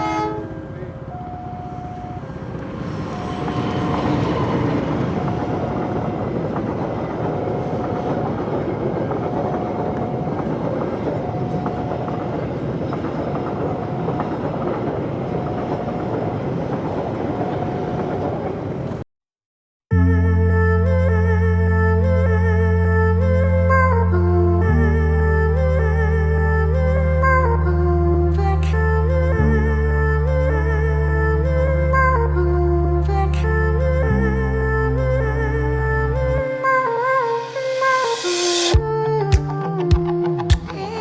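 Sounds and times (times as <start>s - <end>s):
single tone: 0.0s - 6.4s
train rumble and wheel clatter: 0.0s - 19.0s.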